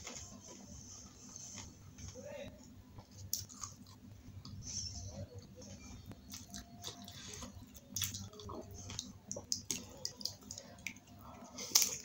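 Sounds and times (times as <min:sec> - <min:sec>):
wet chewing: 0:05.4 - 0:12.0.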